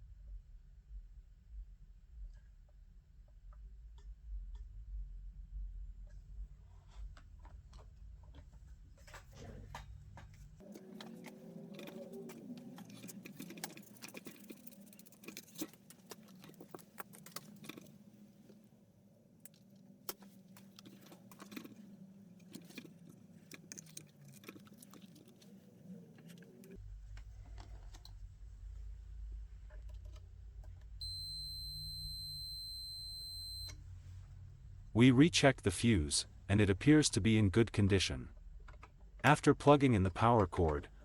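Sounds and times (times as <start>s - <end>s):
low hum: 26.6s - 38.5s.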